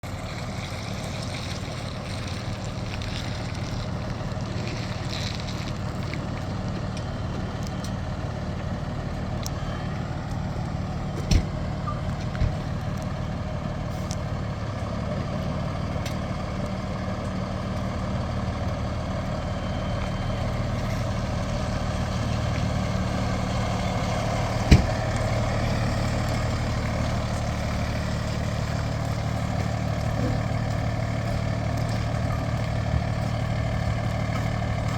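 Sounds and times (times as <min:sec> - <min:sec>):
heavy vehicle engine running: 0:00.0 - 0:34.9.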